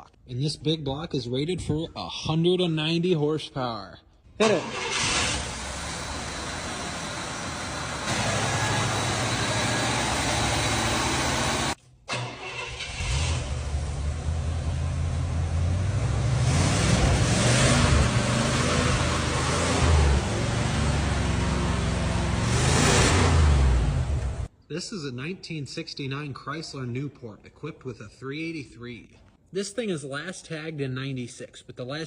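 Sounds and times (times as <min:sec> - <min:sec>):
engine rumbling and revving: 0:04.6 - 0:24.5.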